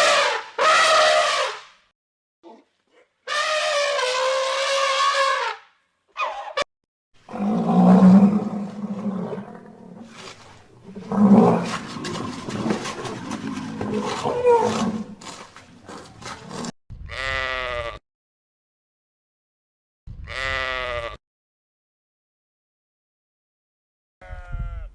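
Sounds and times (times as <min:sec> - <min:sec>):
big cat roaring and growling: 0:07.3 - 0:15.2.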